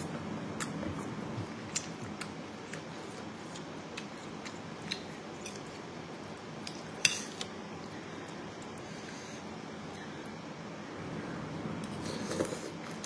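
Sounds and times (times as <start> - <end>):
person chewing noodles: 0.5 - 9.2.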